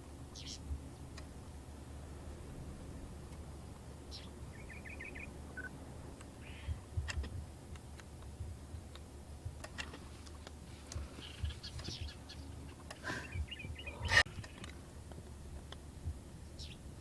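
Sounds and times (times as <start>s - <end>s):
steady low hum: 0.0s - 17.0s
faint high bird chirps: 0.3s - 0.7s, 4.0s - 5.7s, 11.0s - 14.7s, 16.5s - 16.8s
sharp clicks: 5.6s - 15.8s.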